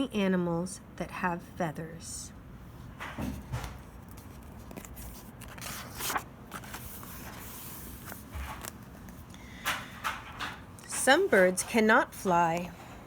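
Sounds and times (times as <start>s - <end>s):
book page turning: 3.6s - 9.3s.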